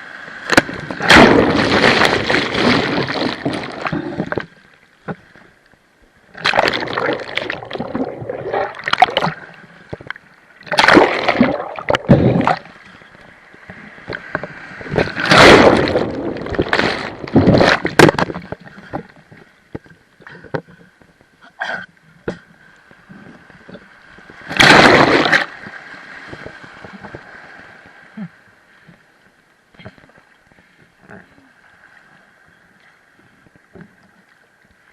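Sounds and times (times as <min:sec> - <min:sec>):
sea water splashing: 0:00.1 - 0:05.3, 0:06.3 - 0:19.4, 0:22.9 - 0:28.4
water gurgling: 0:00.5 - 0:04.6, 0:06.3 - 0:12.9, 0:13.7 - 0:19.2, 0:23.1 - 0:25.7.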